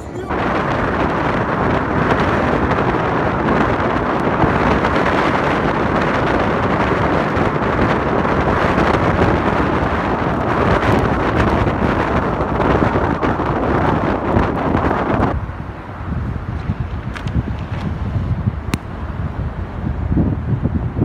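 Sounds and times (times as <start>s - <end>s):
car driving rumble: 0.0s - 10.9s
wind buffeting microphone: 0.0s - 21.0s.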